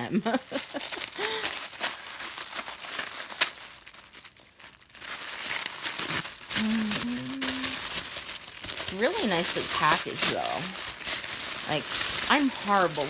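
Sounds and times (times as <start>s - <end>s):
paper wrapping crinkling: 0.0s - 13.0s
person humming: 6.6s - 7.8s.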